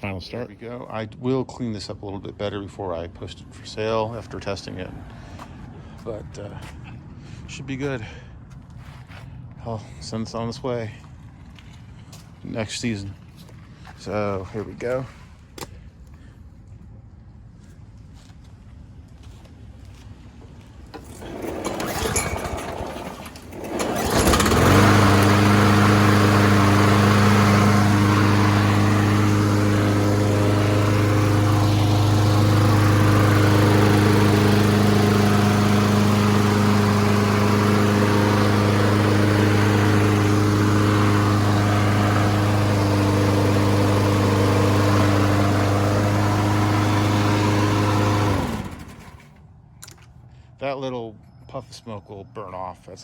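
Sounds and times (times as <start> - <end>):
lawn mower engine running: 20.8 - 50.0
recoil starter pull: 20.9 - 50.1.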